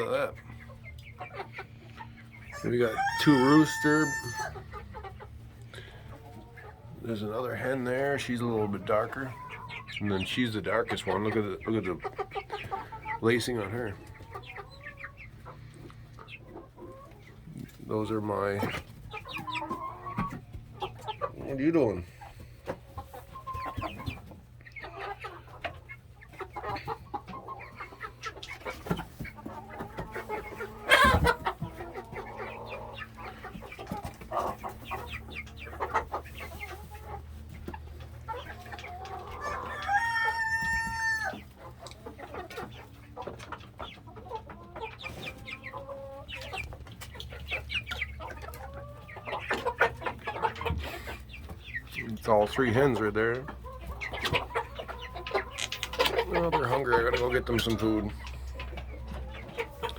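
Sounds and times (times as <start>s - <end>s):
chickens clucking: 0.0s - 59.9s
rooster crowing: 2.9s - 4.6s.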